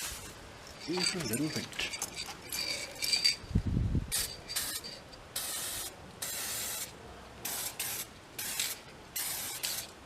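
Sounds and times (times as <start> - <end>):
wind on microphone: 3.4 - 4.3
spray can hissing: 5.4 - 9.9.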